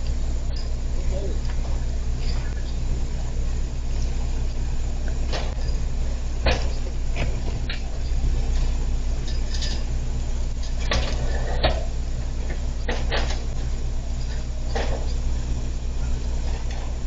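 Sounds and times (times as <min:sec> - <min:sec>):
vehicle cabin drone: 0:00.0 - 0:17.0.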